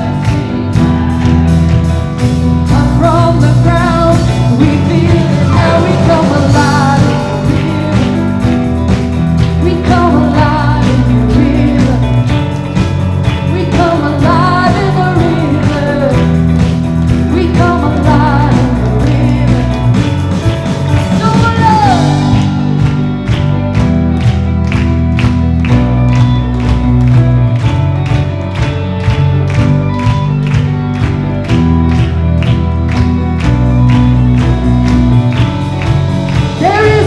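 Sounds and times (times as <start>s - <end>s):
person singing: 0.0s - 23.1s, 36.4s - 37.0s
steady drum beat: 0.0s - 37.0s
worship band playing: 0.0s - 37.0s.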